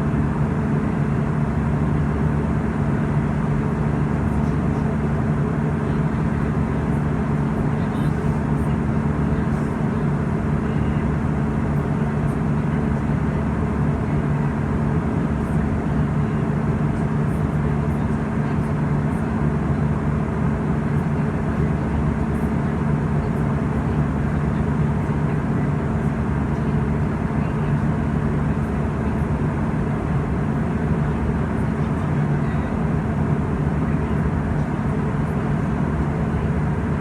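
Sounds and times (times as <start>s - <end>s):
constant low hum: 0.0s - 37.0s
engine and airflow rush: 0.0s - 37.0s.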